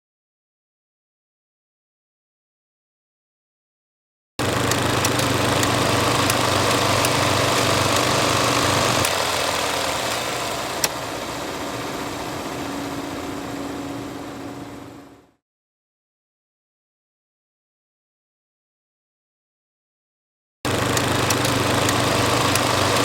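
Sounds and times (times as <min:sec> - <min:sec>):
film projector running: 0:04.4 - 0:15.4, 0:20.7 - 0:23.0.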